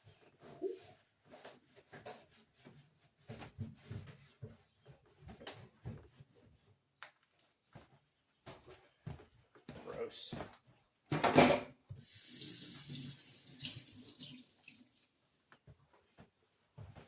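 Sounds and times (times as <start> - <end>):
wiping and scrubbing surfaces: 0.0 - 6.8.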